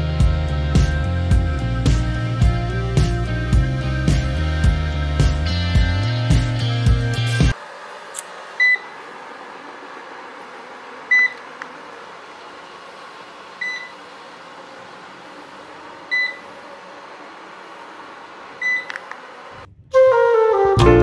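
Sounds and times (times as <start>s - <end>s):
robot vacuum humming: 7.5s - 19.7s.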